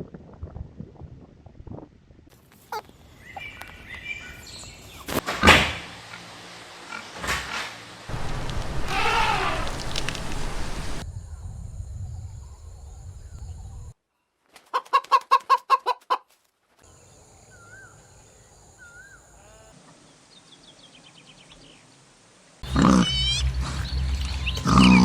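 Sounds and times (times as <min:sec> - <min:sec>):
falling run of short calls: 0:08.1 - 0:11.0
chicken clucking: 0:14.7 - 0:16.3.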